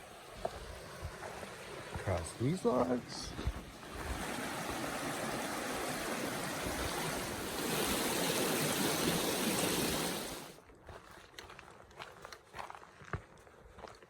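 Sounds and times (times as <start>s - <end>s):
creek water rushing: 0.0s - 10.6s.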